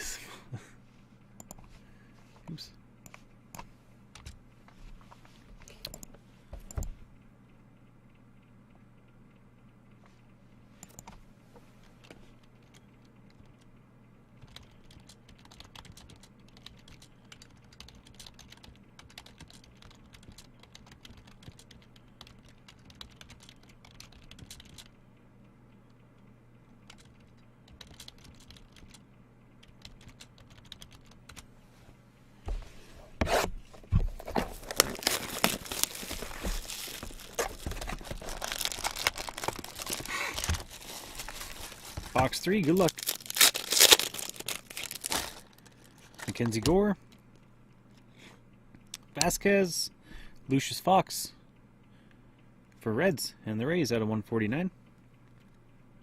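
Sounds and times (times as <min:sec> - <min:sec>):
wrapping crinkling and tearing: 0:34.2 - 0:46.6
trading cards clicking: 0:34.2 - 0:46.8.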